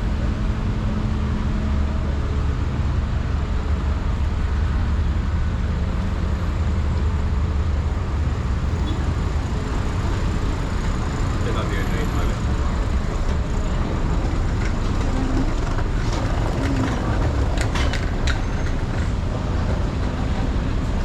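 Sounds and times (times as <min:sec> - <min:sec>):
faint engine hum: 0:00.0 - 0:21.0
road traffic rumble: 0:00.0 - 0:21.0.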